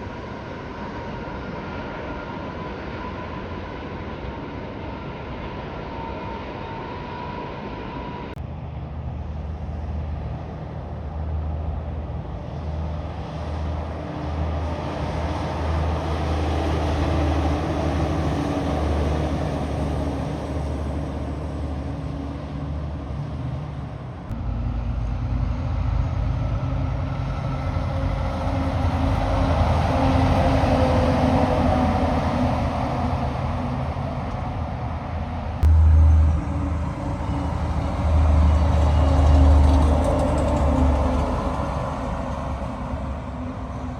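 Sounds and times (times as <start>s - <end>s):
heavy trucks driving past: 8.4s - 43.9s
low rumble: 32.5s - 43.9s.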